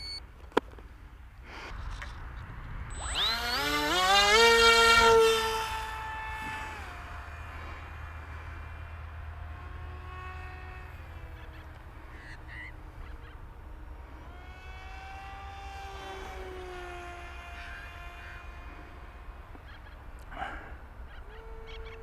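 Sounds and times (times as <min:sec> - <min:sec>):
electric motor and propeller whine: 0:01.7 - 0:22.0.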